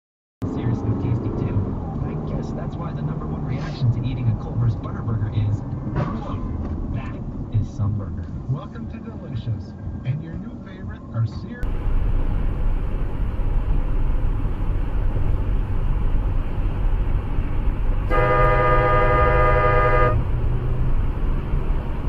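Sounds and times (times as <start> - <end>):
engine and road rumble: 0.4 - 22.0
car horn blaring: 18.1 - 20.4.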